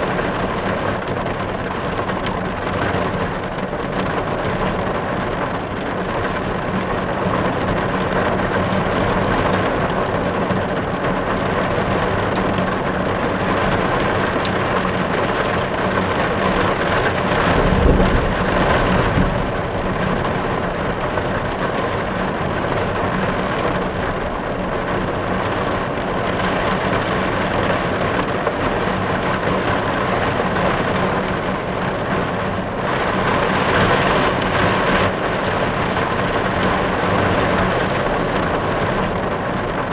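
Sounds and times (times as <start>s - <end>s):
rain on car roof: 0.0s - 39.9s
low rumble: 17.2s - 22.0s.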